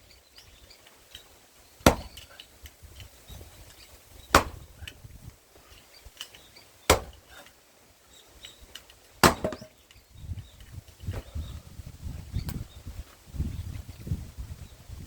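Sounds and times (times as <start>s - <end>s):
axe splitting wood: 1.8s - 2.5s, 4.2s - 5.0s, 6.9s - 7.5s, 9.2s - 9.8s.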